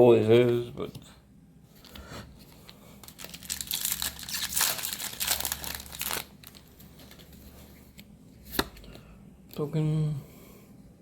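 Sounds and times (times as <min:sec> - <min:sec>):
plastic wrapper crinkling and tearing: 0:02.6 - 0:07.4.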